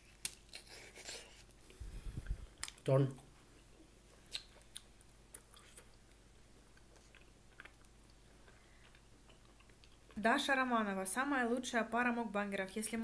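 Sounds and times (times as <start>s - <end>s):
faint chewing mouth clicks: 2.2s - 2.9s, 4.2s - 10.2s.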